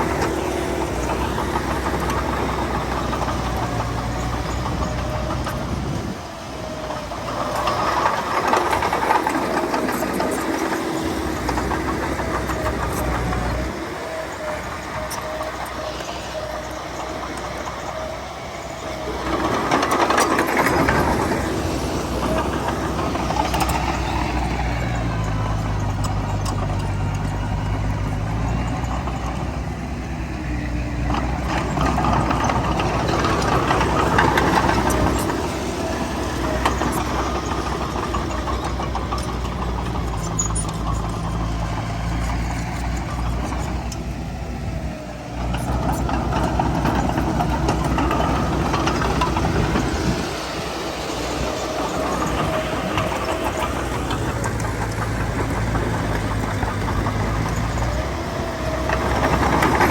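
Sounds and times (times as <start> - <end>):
heavy diesel engine under load: 0.0 - 59.9.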